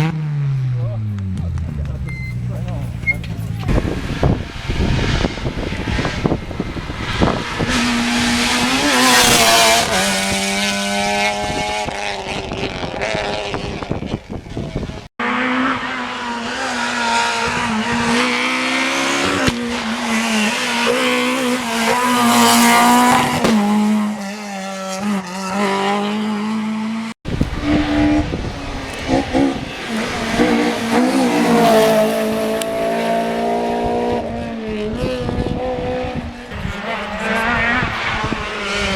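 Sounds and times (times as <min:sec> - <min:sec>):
rally car engines revving: 0:00.0 - 0:38.9
tyre squeal: 0:02.0 - 0:03.8.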